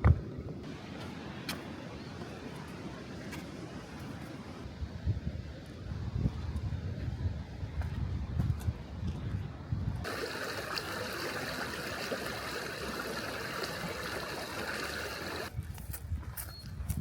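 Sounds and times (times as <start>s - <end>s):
water running: 10.0s - 15.5s.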